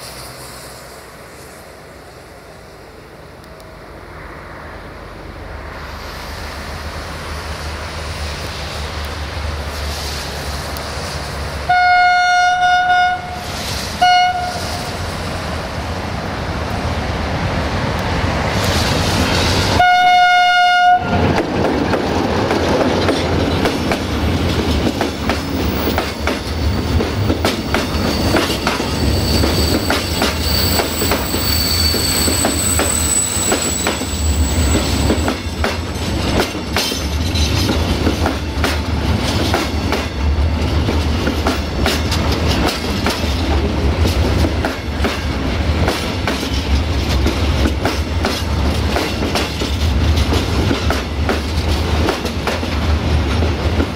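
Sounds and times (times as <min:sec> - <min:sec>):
locomotive horn blast: 0:11.7 - 0:14.9, 0:19.8 - 0:21.3
freight train wheels clacking: 0:13.1 - 0:53.9
high wheel squeal: 0:25.4 - 0:36.4.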